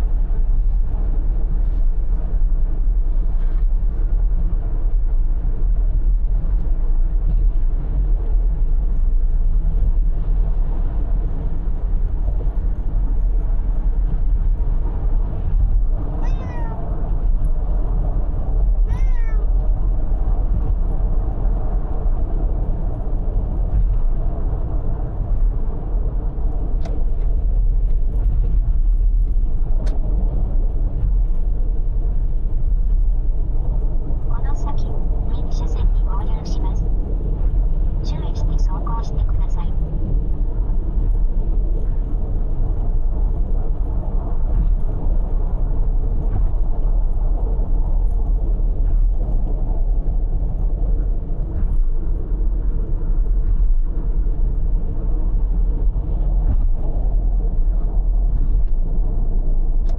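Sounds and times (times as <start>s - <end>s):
car road and engine rumble: 0.0s - 59.9s
cat meowing: 16.2s - 16.8s, 18.9s - 19.5s.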